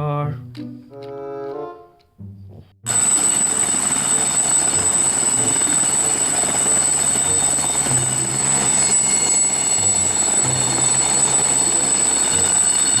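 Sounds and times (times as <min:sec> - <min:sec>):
helicopter rotor and engine noise: 0:02.9 - 0:13.0
high thin whine: 0:02.9 - 0:13.0.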